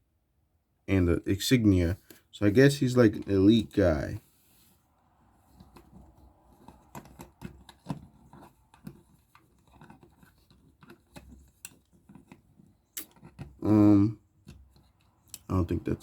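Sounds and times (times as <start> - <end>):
plastic parts clicking and tapping: 5.5 - 13.7, 14.4 - 15.5.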